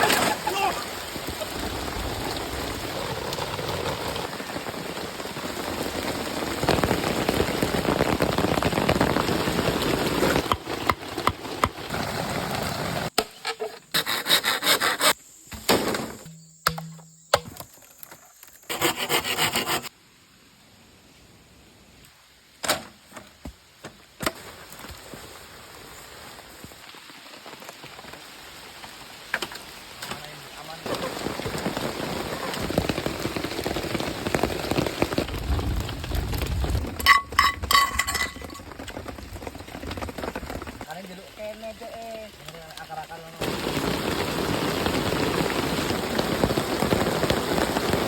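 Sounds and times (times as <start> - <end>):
hand saw cutting wood: 13.9 - 15.2, 18.7 - 19.9.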